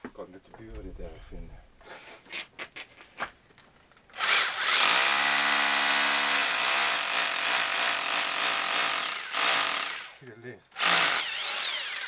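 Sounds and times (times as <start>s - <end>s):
electric power tool running: 4.2s - 10.2s, 10.8s - 12.0s.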